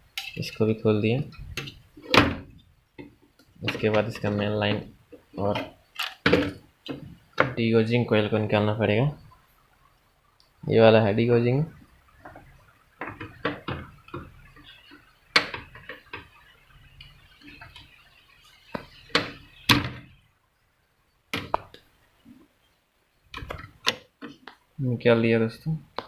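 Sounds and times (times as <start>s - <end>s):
hands clicking and knocking inside tv: 12.2s - 16.5s, 18.7s - 20.1s, 21.3s - 21.9s, 23.3s - 24.6s.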